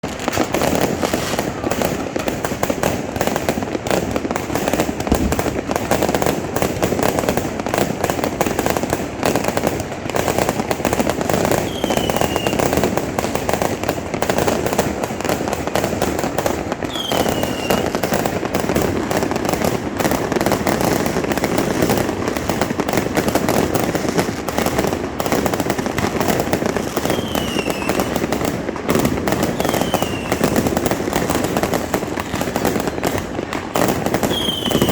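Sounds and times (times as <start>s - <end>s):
firecrackers crackling: 0.0s - 34.9s
falling firework whistles: 0.1s - 2.5s, 11.5s - 12.8s, 16.8s - 18.2s, 26.8s - 28.3s, 29.4s - 30.7s, 32.3s - 34.9s.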